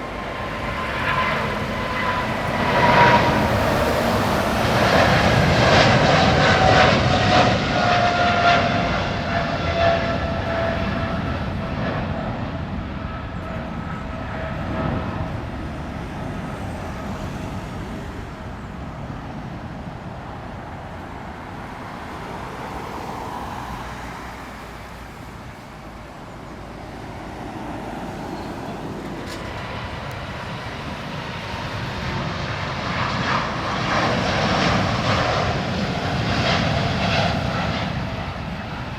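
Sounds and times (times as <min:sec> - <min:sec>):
another jet engine: 0:00.0 - 0:38.9
jet engines at takeoff: 0:00.0 - 0:38.9.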